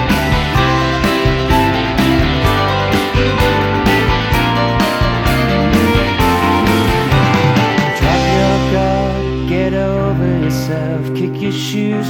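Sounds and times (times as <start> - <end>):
drums keeping a steady beat: 0.0 - 8.8
bass: 0.0 - 12.0
guitars: 0.0 - 12.0.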